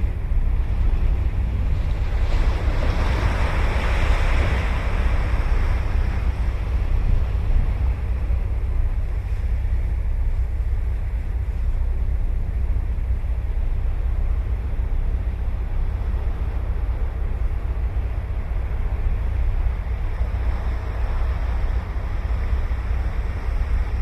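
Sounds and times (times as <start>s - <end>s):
ocean surf breaking on beach: 0.0s - 10.2s
wind on microphone: 0.0s - 24.0s.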